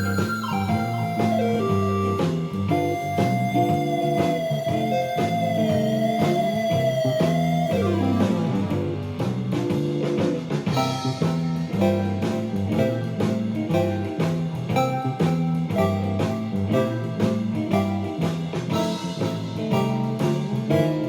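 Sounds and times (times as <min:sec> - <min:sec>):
synth lead with vibrato: 0:00.0 - 0:08.9
blues backing track: 0:00.0 - 0:21.0.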